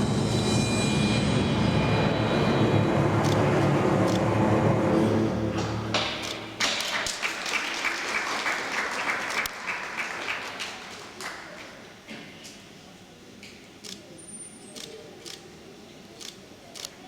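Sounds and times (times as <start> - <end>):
music: 0.0 - 6.6
audience applause: 5.6 - 11.8.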